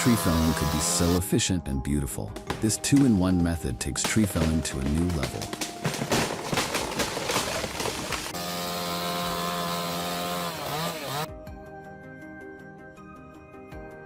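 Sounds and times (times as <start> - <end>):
chainsaw running: 0.0 - 1.2, 5.8 - 11.3.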